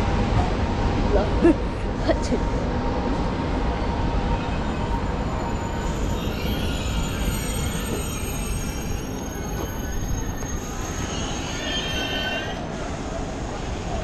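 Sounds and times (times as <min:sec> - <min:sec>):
metallic train squeal: 0:04.3 - 0:13.0.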